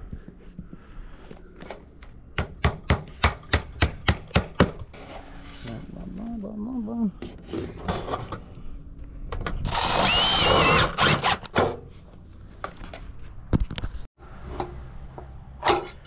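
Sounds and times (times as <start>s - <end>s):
power drill whining: 9.6s - 11.5s.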